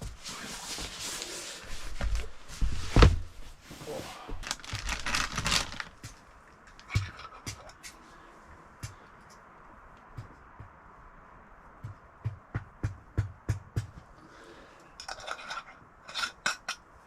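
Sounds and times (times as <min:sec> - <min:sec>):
packaging rustling and crinkling: 0:00.0 - 0:06.9.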